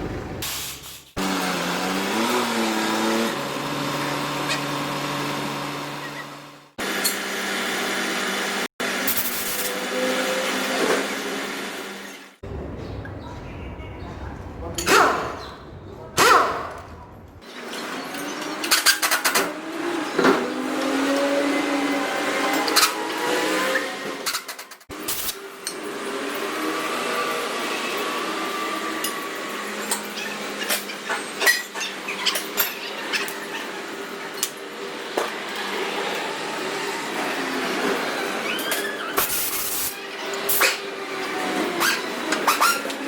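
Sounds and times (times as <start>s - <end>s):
machine motor humming: 12.4s - 17.4s.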